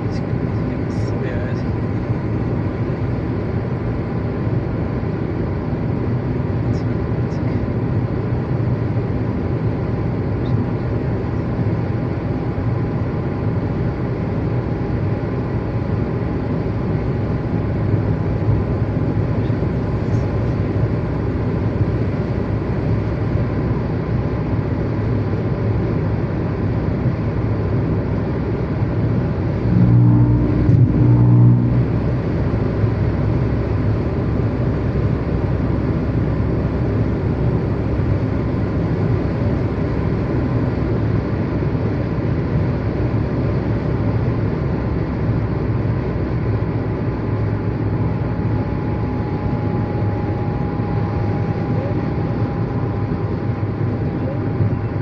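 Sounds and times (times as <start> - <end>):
vehicle rumble: 25.4 - 43.2
louder low hum: 28.1 - 40.5, 46.2 - 55.0.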